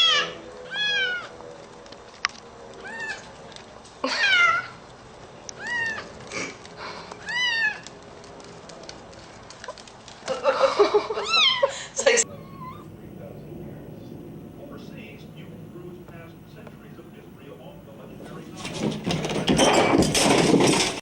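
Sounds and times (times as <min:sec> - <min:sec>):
cat meowing: 0:00.0 - 0:01.3, 0:02.8 - 0:03.3, 0:04.1 - 0:04.8, 0:05.6 - 0:06.1, 0:07.2 - 0:07.9, 0:11.2 - 0:15.4
loud jumble of sound: 0:12.2 - 0:20.5.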